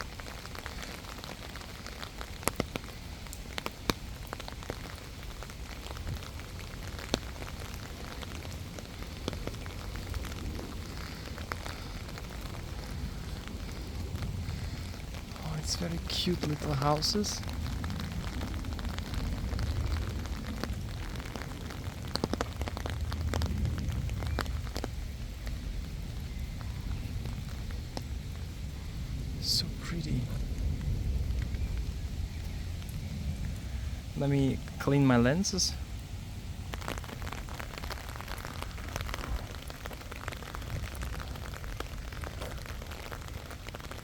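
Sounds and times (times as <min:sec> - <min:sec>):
rain pattering: 0:00.0 - 0:44.0
wind rumbling on microphone: 0:00.0 - 0:44.0
sharp clicks and crackles: 0:06.8 - 0:25.6, 0:36.7 - 0:44.0.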